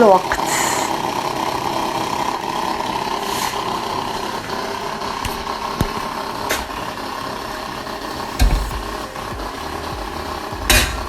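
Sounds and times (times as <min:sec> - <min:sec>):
coffee machine humming: 0:00.9 - 0:11.0.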